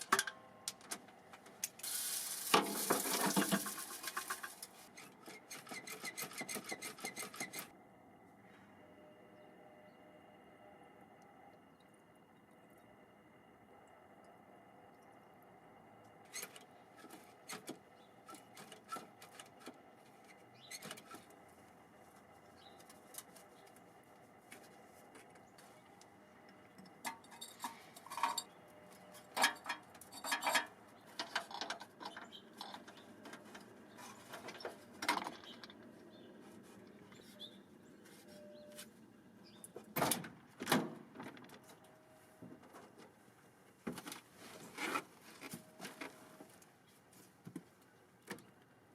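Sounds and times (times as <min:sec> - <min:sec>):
tools clicking and tapping: 0:29.3 - 0:33.7.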